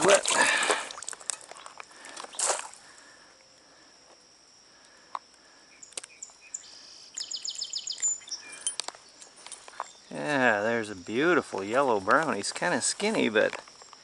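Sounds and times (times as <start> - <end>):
stream water splash: 0.0 - 1.3, 2.4 - 2.8
high insect drone: 0.0 - 14.0
bird chirping: 5.7 - 11.4.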